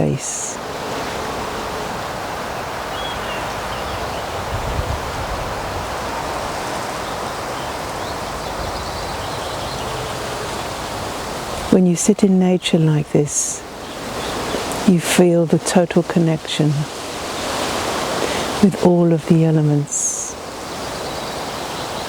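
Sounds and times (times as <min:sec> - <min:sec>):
wind rumble on microphone: 0:00.0 - 0:11.8
rushing woodland ambience: 0:00.0 - 0:22.0.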